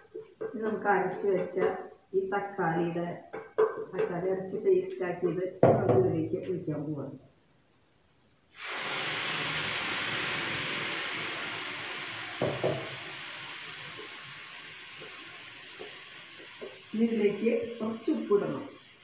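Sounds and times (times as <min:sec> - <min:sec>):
puree sizzling in hot oil: 0:08.5 - 0:19.0.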